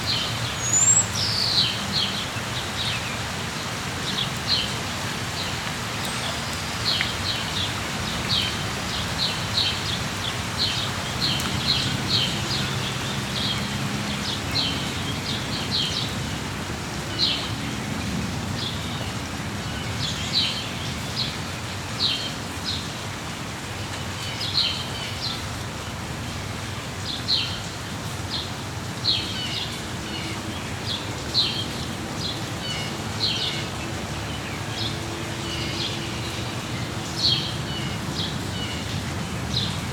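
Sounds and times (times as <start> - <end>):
small birds chirping: 0.0 - 3.2
steady rain hiss: 0.0 - 39.9.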